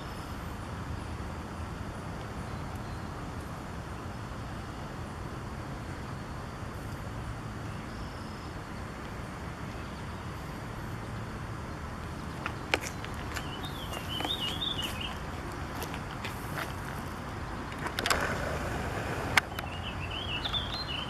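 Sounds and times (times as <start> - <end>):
low outdoor rumble: 0.0 - 21.0
songbird warbling: 12.2 - 15.2, 19.4 - 21.0.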